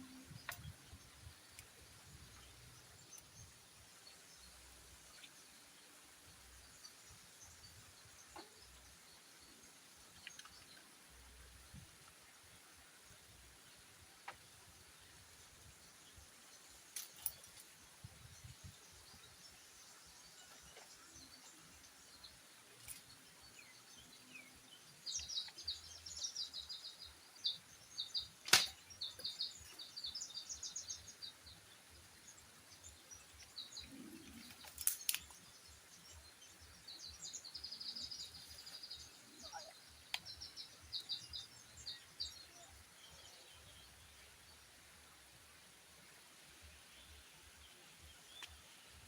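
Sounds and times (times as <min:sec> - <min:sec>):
faint outdoor ambience: 0:00.0 - 0:49.0
sharp clicks or knocks: 0:28.4 - 0:28.8.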